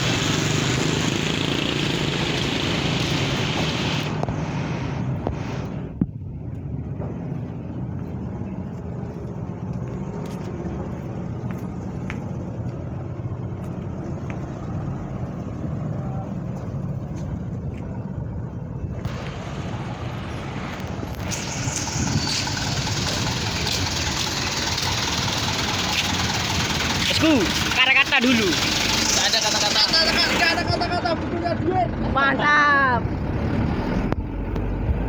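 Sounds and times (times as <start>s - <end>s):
truck engine rumbling: 0.0s - 35.0s.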